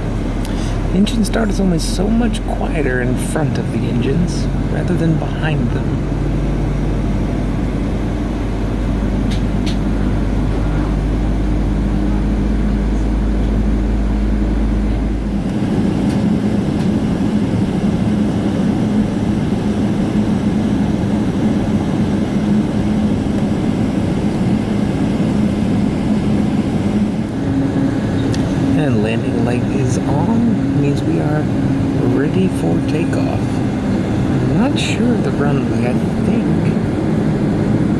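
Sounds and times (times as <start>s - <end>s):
deep low rumble: 0.0s - 18.2s, 24.2s - 37.9s
jet engines humming at idle: 0.0s - 37.9s
cabin air hiss: 27.9s - 37.2s.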